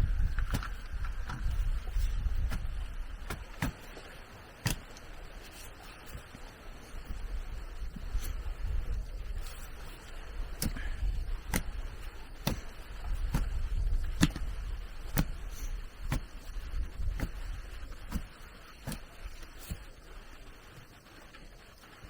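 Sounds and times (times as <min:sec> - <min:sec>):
low rumble: 0:00.0 - 0:03.6.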